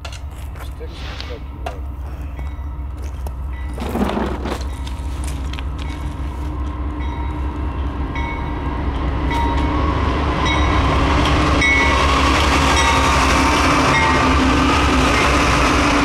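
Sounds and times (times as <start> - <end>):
diesel locomotives approaching: 0.0 - 16.0
freight train rumbling: 0.0 - 16.0
train clatter: 1.6 - 7.3.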